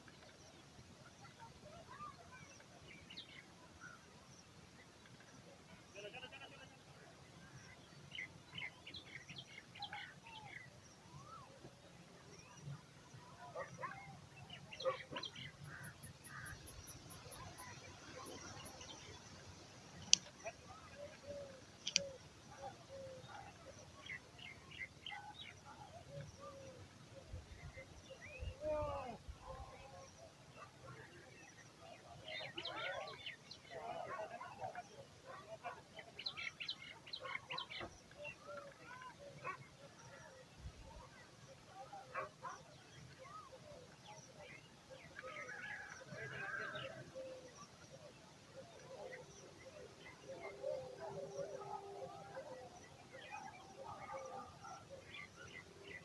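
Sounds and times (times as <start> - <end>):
birds calling: 13.8 - 26.8.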